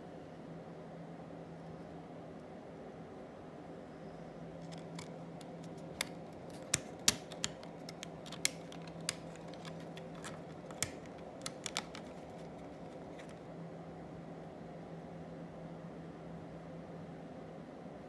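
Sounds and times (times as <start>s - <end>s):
clicks of small plastic parts: 4.6s - 13.4s.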